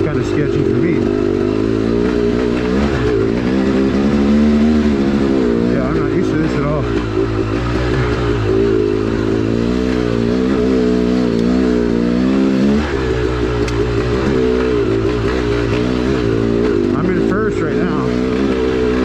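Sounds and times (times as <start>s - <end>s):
two-stroke motorcycle engine revving: 0.0s - 19.0s.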